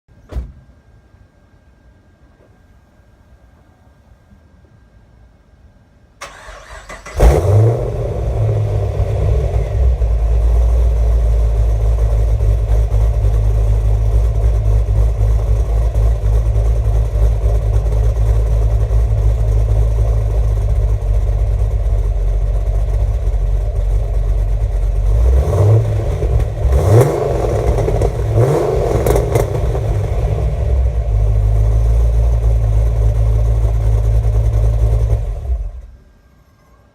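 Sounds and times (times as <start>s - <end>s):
car engine revving: 6.2s - 35.8s
car engine starting: 6.2s - 36.0s
car engine idling deeply: 7.2s - 36.0s.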